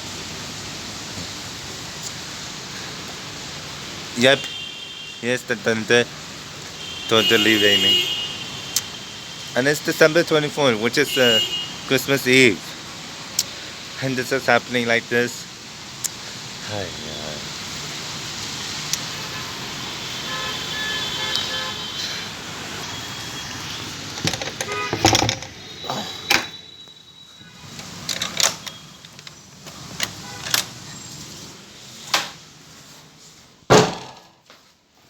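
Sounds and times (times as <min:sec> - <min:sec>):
steady rain: 0:00.0 - 0:26.2, 0:26.9 - 0:33.7
sharp clicks and knocks: 0:24.2 - 0:25.6.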